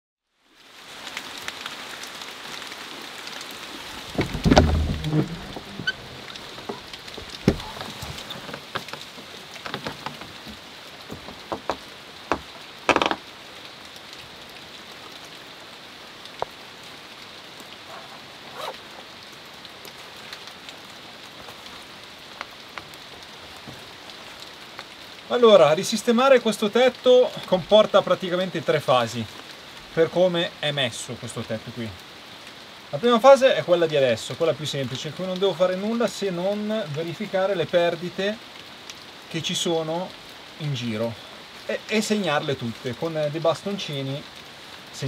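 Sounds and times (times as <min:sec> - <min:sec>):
rain falling: 0:00.3 - 0:45.0
drips: 0:03.6 - 0:15.2
sharp knocks and low thuds: 0:03.9 - 0:13.3.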